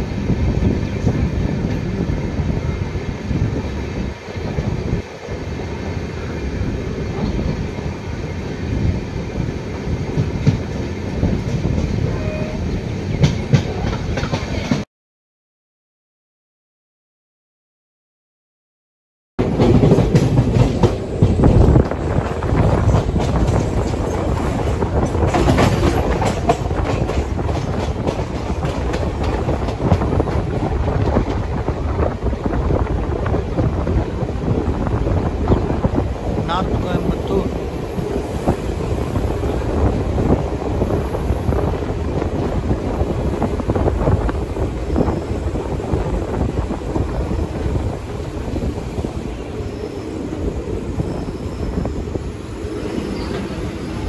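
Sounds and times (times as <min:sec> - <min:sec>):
wind noise on microphone: 0:00.0 - 0:14.8, 0:19.4 - 0:54.0
train wheels rumbling on rail: 0:00.0 - 0:14.9, 0:19.4 - 0:54.0
wheels clattering over rail joints: 0:19.4 - 0:31.6.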